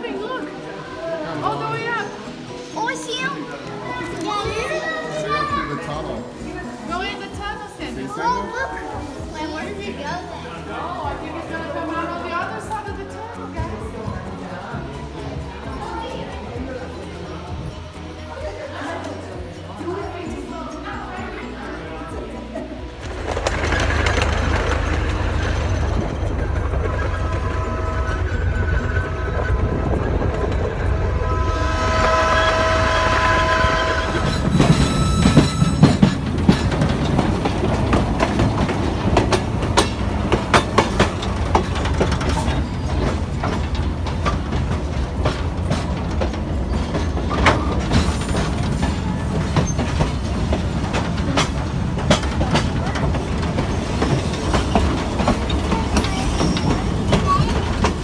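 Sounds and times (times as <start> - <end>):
model train wheels clicking: 22.1 - 58.0
horn-like tones: 26.5 - 36.7.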